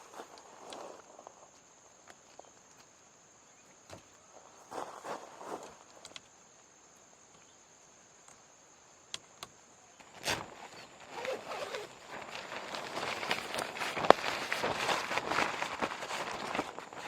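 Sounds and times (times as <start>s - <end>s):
rustling footsteps: 0.0s - 3.0s, 4.0s - 6.0s, 10.0s - 17.0s
high insect drone: 0.0s - 17.0s.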